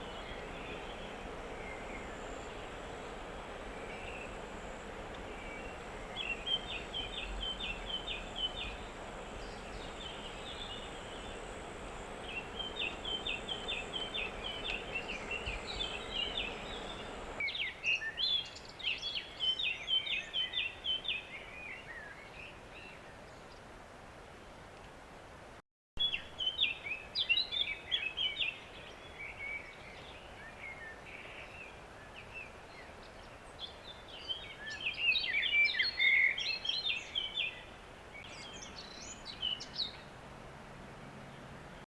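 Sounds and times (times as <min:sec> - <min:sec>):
songbirds twittering: 0:00.0 - 0:17.5, 0:26.0 - 0:40.1
outdoor background noise: 0:00.0 - 0:41.9.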